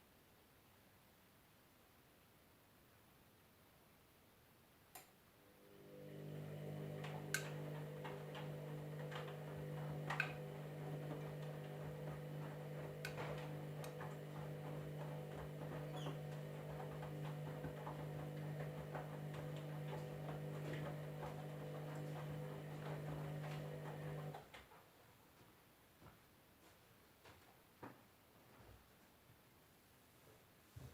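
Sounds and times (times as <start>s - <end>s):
washing machine motor hum: 5.6s - 24.5s.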